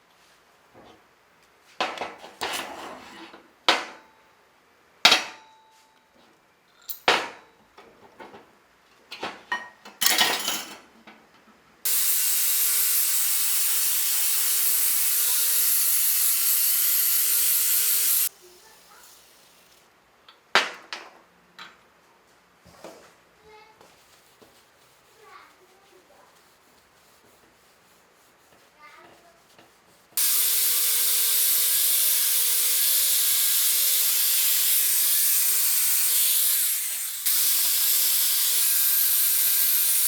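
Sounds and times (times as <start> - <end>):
tools and metal parts clattering: 9.1 - 10.9
loud steady hiss: 11.9 - 19.9.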